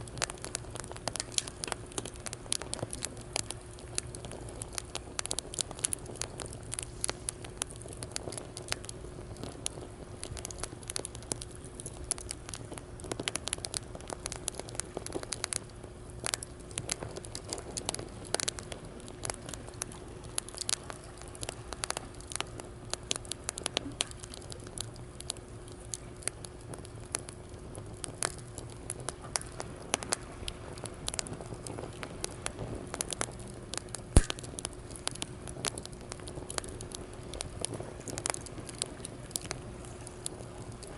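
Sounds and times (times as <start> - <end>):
wood fire crackling: 0.0 - 40.9
loud fire pop: 34.1 - 34.6.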